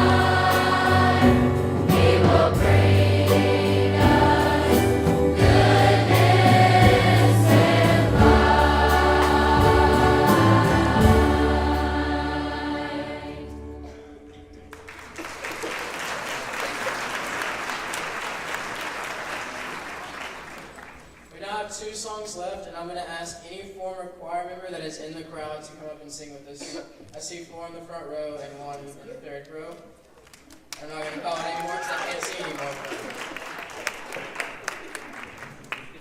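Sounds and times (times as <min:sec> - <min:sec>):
choir singing with accompaniment: 0:00.0 - 0:14.3
audience applause: 0:14.7 - 0:21.2, 0:30.3 - 0:36.0.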